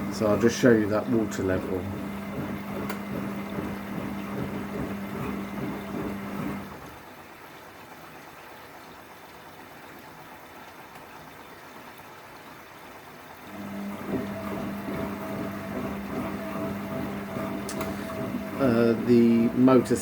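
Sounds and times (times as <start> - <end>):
washing machine hum: 0.0 - 7.2, 13.3 - 20.0
water sloshing in drum: 0.0 - 7.2, 13.4 - 20.0.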